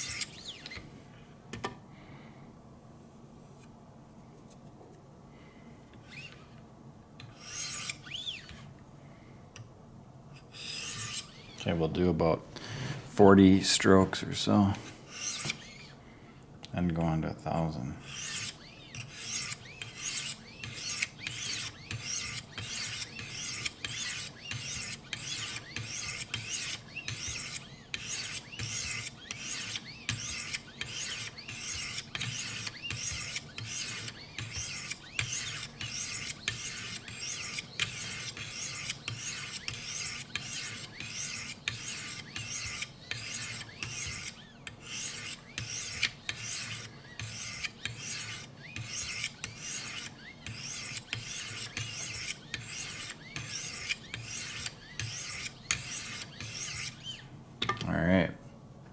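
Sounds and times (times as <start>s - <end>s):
sharpening stone scraping knife edge: 18.1s - 57.1s.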